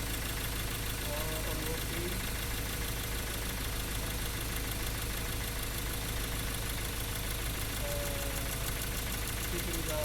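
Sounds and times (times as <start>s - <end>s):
diesel engine idling with misfire: 0.0s - 10.0s.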